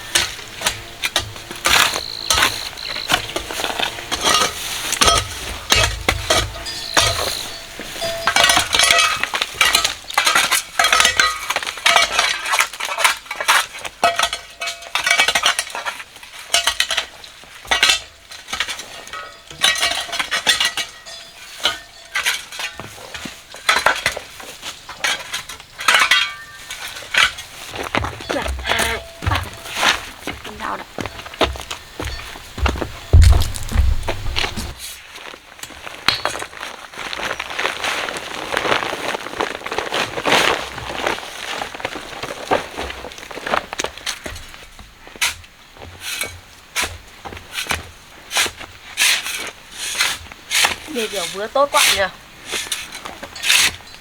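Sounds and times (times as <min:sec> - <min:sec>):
metal tool scraping: 0:00.0 - 0:12.1.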